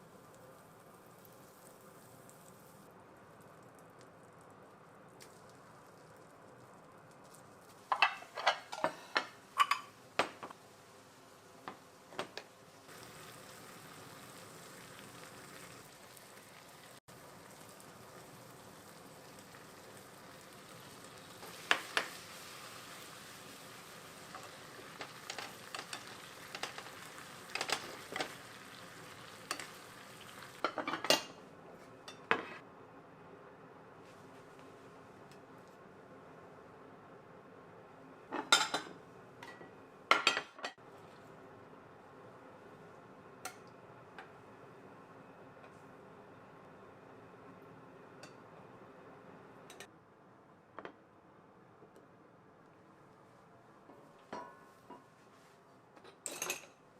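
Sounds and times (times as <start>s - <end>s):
food sizzling in frying pan: 0.0s - 3.4s, 7.2s - 31.4s.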